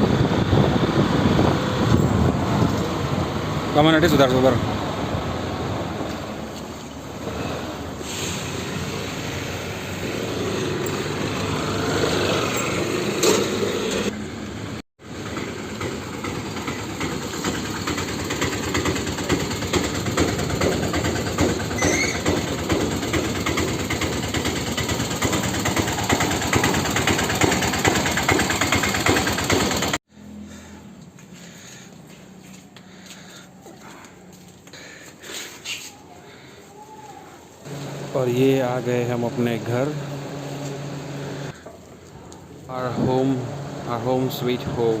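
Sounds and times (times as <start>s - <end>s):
wind noise on microphone: 0.0s - 3.4s
small motorbike engine running: 15.0s - 30.7s.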